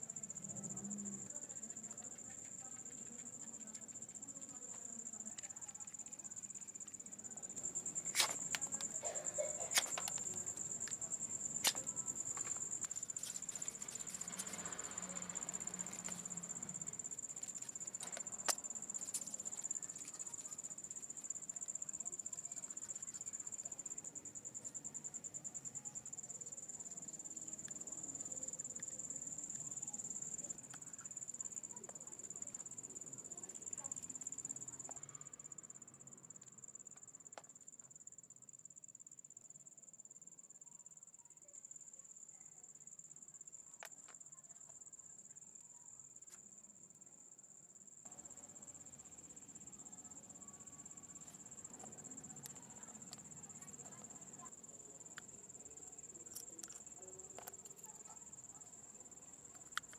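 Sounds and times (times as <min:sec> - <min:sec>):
insect trilling: 0:00.1 - 0:35.4.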